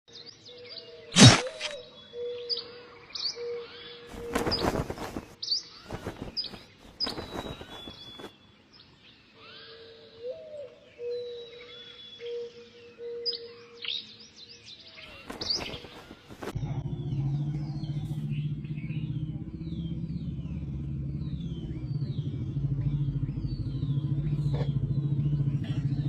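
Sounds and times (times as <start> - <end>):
birds chirping and whistling: 0.2 - 8.3, 9.3 - 26.0
low tone: 16.5 - 26.0.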